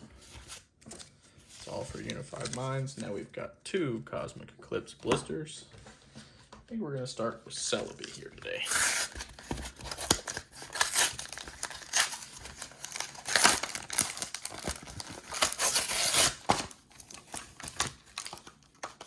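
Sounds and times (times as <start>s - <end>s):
plastic packaging tearing and crinkling: 8.5s - 19.0s.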